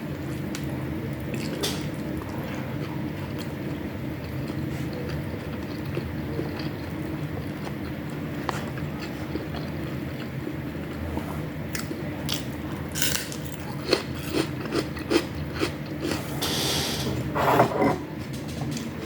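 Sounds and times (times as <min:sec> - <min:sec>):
chewing crunchy food: 0:00.3 - 0:16.2
utensils clattering: 0:16.4 - 0:19.0.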